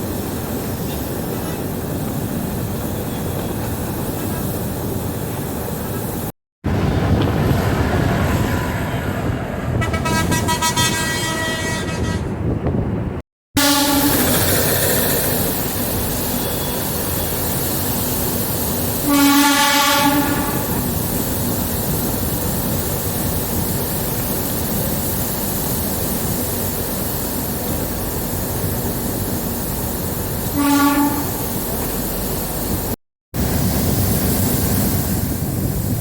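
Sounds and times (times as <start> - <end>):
train running noise: 0.0 - 36.0
train horn blasts: 9.8 - 12.4, 13.6 - 14.4, 19.0 - 20.8, 30.5 - 31.4.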